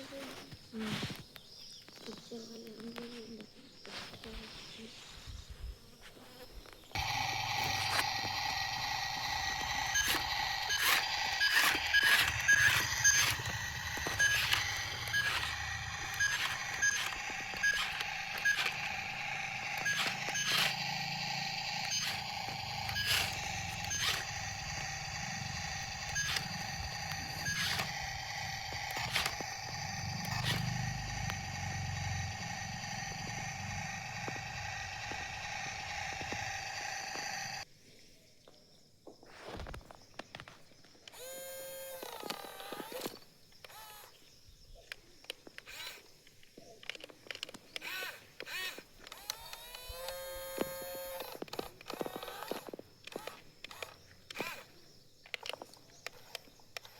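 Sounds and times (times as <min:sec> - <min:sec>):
small electric motor whining: 0:06.6 - 0:37.7, 0:41.1 - 0:44.2, 0:45.6 - 0:46.1, 0:47.4 - 0:54.8, 0:55.4 - 0:56.9
plastic gears clicking: 0:07.0 - 0:37.6, 0:41.1 - 0:44.2, 0:44.8 - 0:56.9.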